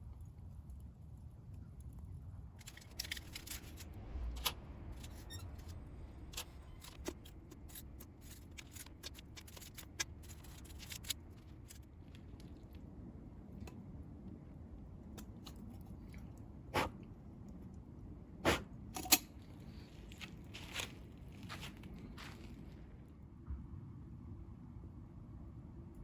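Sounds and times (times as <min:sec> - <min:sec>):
burning wood crackling and popping: 0:00.0 - 0:16.5
wood fire low rumble: 0:00.0 - 0:26.0.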